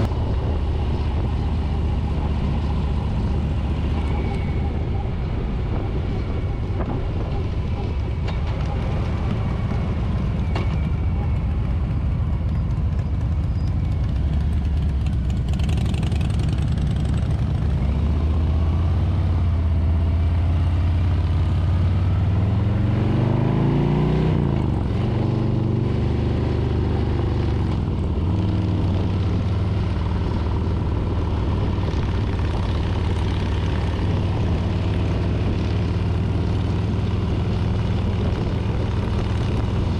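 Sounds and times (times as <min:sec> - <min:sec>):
motorcycle engine running: 0:00.0 - 0:23.1, 0:24.1 - 0:39.9.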